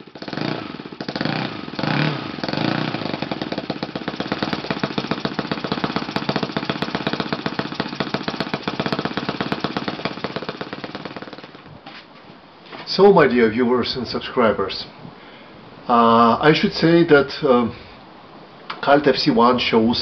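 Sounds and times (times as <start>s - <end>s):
model engine idling: 0.0s - 11.7s.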